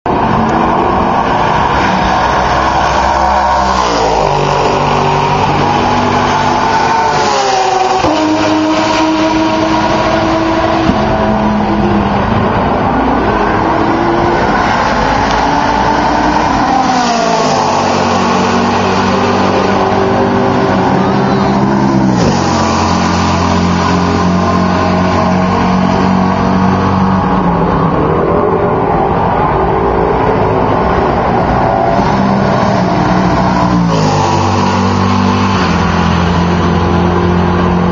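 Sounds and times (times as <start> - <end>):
race cars passing at full throttle: 0.1 - 37.9.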